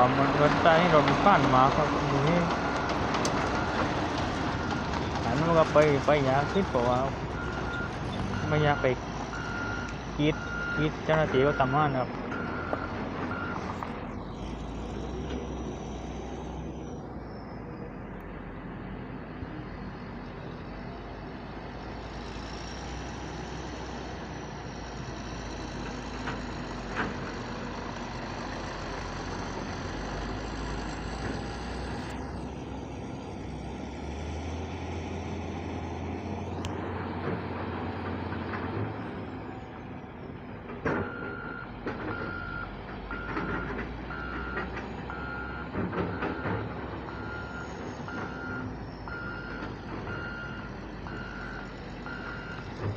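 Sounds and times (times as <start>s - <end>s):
heavy diesel machinery running: 0.0s - 52.9s
reversing beeper: 4.6s - 13.6s, 41.0s - 52.7s.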